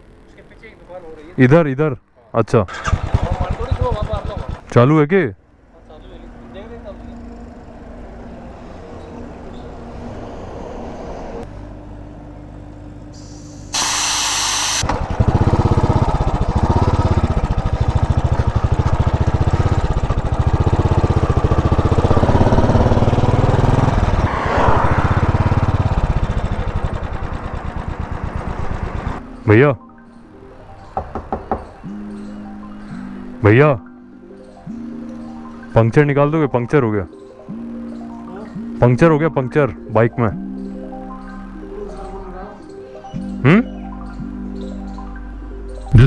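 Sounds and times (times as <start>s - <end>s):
motorcycle engine thumping: 2.7s - 4.8s, 14.8s - 24.3s, 25.0s - 29.2s, 31.0s - 31.8s
loud hiss: 13.2s - 14.9s.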